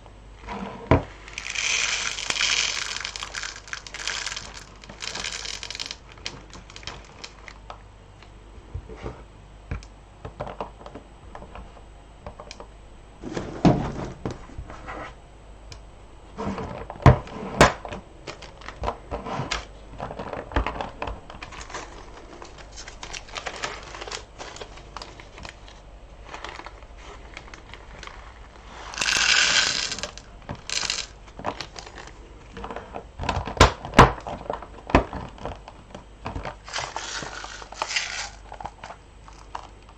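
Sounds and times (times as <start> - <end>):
rustling burst: 1.2 - 6.0
beads knocking: 1.2 - 7.5, 28.9 - 31.2, 36.6 - 38.7
beads clicking and rattling: 1.3 - 7.5, 28.9 - 31.1, 36.7 - 38.4.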